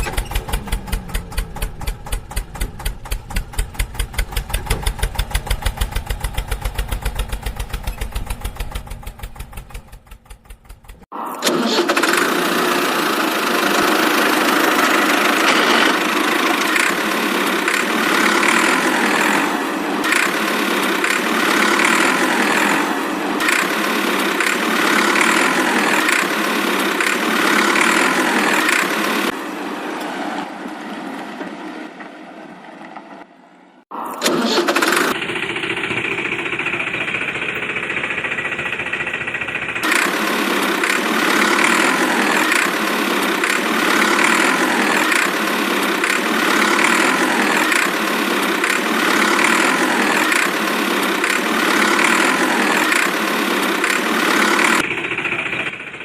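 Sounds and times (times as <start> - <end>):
tractor engine running: 0.0 - 29.4, 33.9 - 56.0.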